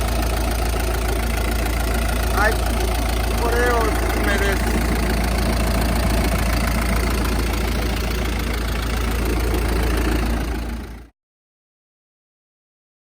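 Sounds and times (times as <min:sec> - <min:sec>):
diesel forklift engine idling: 0:00.0 - 0:11.1.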